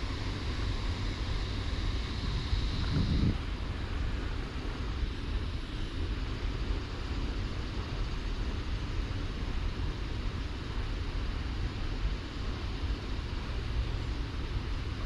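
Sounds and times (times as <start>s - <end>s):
wind buffeting microphone: 1.5s - 3.7s.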